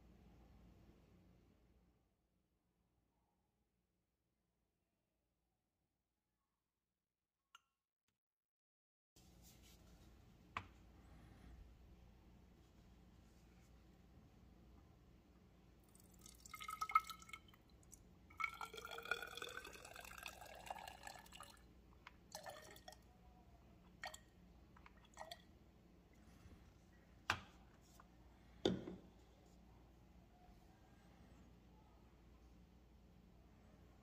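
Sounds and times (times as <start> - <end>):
alcohol pouring into glass cylinder: 15.9 - 21.7, 22.3 - 23.1
liquid dripping: 15.9 - 23.1, 24.0 - 25.5.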